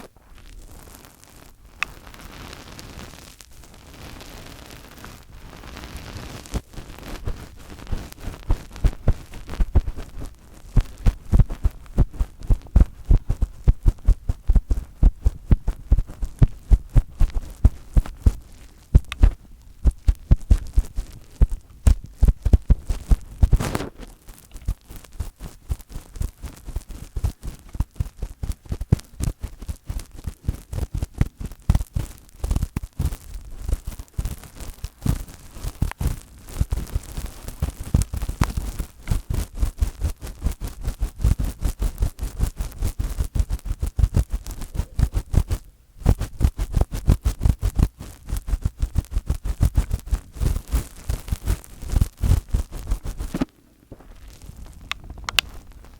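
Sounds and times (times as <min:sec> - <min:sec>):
fingertips tapping on microphone: 0:07.1 - 0:23.9, 0:42.4 - 0:53.6, 0:54.8 - 0:55.7.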